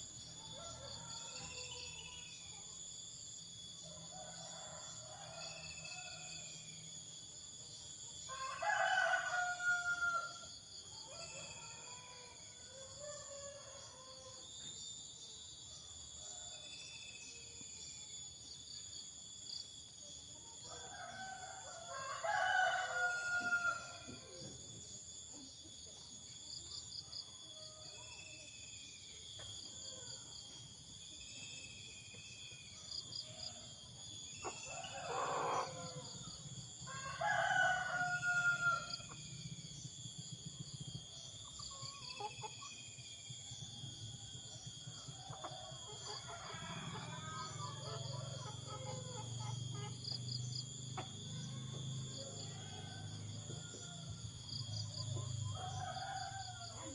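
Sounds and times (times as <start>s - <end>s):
rooster crowing: 8.3s - 14.4s, 20.6s - 24.2s, 34.4s - 39.1s, 44.9s - 49.4s, 51.8s - 56.9s.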